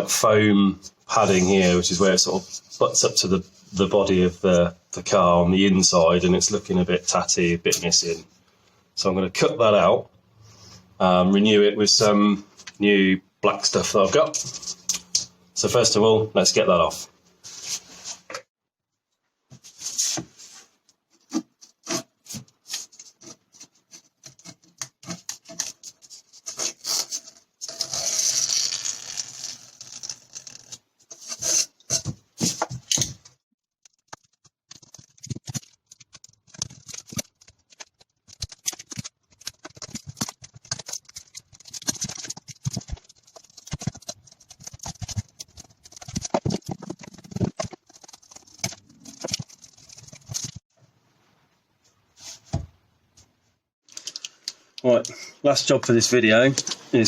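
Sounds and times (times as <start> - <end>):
scraping and rubbing foam: 17.4 - 18.3, 19.6 - 32.8, 34.1 - 50.7.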